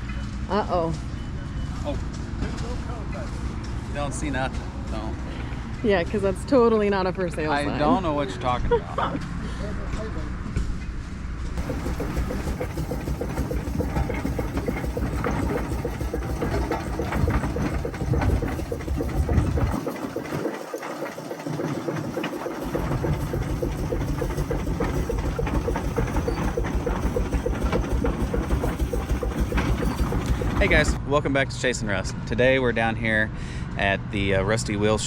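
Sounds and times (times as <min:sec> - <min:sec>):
old engines chugging: 0:11.6 - 0:31.0.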